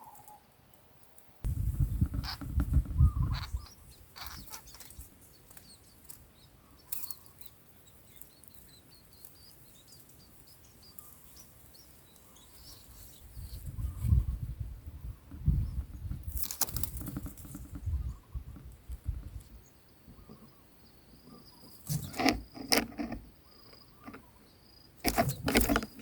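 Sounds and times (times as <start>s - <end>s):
high bird chirps: 2.2s - 14.4s.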